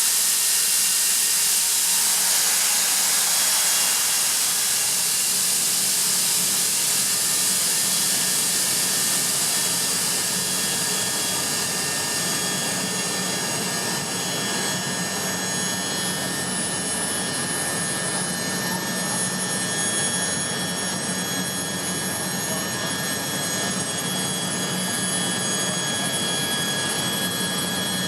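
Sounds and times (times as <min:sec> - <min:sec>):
hiss of air: 0:00.0 - 0:06.2
air compressor humming and whining: 0:00.0 - 0:28.0.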